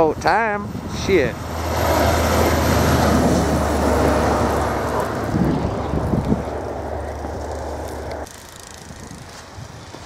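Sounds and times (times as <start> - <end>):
vehicle driving past on snow: 1.5 - 8.3.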